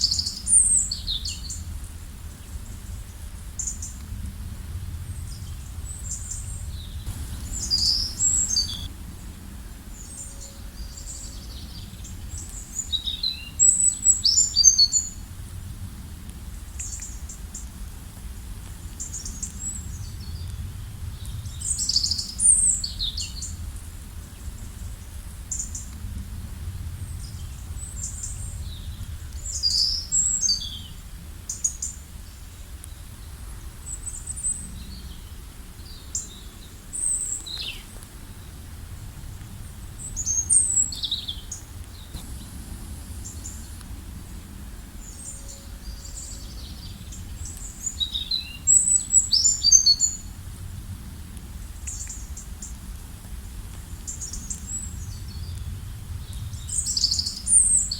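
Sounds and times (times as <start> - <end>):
low outdoor rumble: 0.0 - 57.9
birds chirping: 5.3 - 8.9, 40.0 - 50.1.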